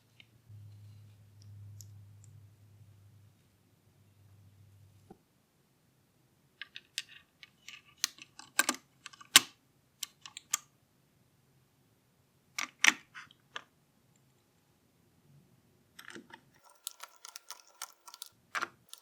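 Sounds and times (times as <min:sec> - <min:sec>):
plastic parts clicking: 0:16.0 - 0:19.0.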